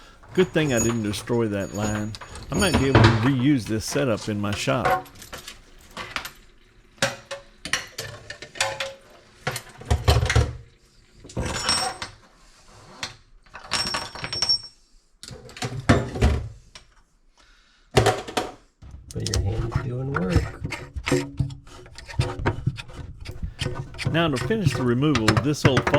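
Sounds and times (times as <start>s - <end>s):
metal parts and tools clinking: 0.0s - 5.6s.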